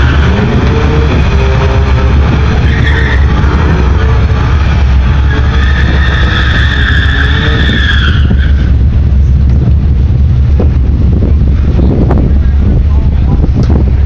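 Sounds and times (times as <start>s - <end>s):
high-pitched two-tone whine: 0.0s - 9.4s
vehicle engine low rumble: 0.0s - 14.0s.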